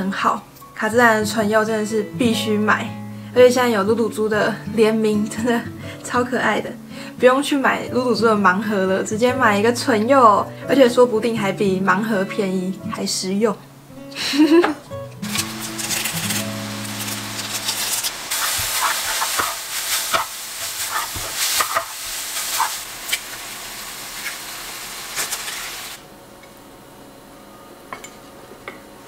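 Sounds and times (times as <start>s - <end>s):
noodles sizzling in frying pan: 15.2s - 26.0s
wooden spatula scraping pan: 15.3s - 22.8s.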